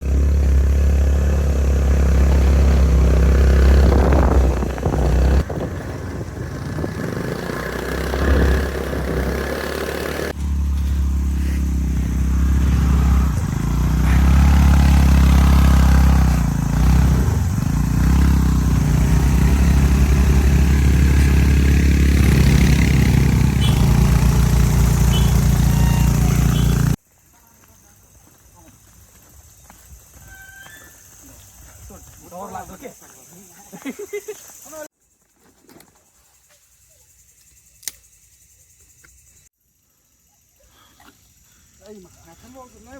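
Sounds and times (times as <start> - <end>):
vehicle engine humming: 0.0 - 27.0.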